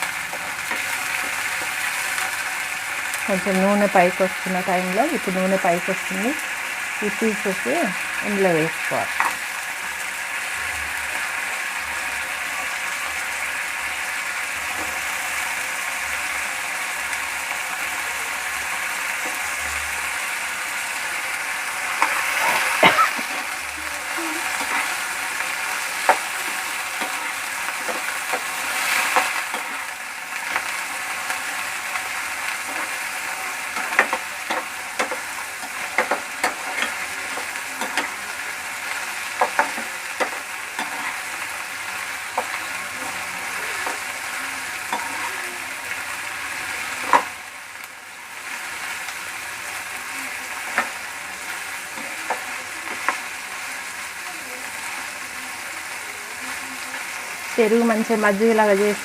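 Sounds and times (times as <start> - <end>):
sauce sizzling in oil: 0.0 - 59.0
spatula scraping a pan: 24.4 - 31.0, 32.5 - 38.2, 39.4 - 41.4, 44.8 - 45.4.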